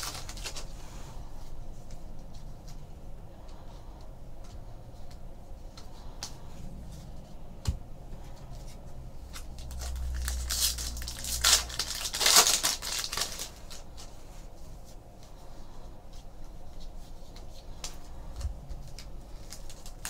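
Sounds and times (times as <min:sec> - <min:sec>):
foil wrapper tearing and crackling: 0:00.0 - 0:00.7, 0:09.3 - 0:14.0, 0:18.9 - 0:20.0.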